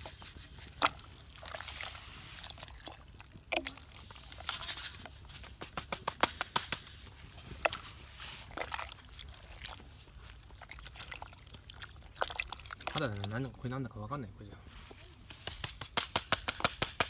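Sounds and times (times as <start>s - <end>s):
stew sloshing in a pot: 0.0s - 13.6s
campfire crackling and popping: 15.2s - 17.0s.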